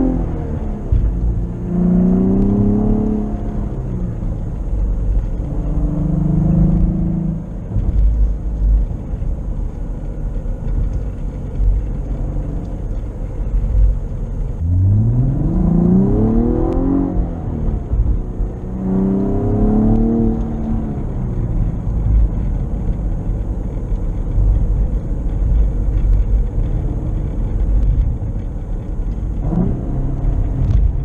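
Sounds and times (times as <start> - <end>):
car engine revving: 0.0 - 31.0
road rumble: 0.0 - 31.0.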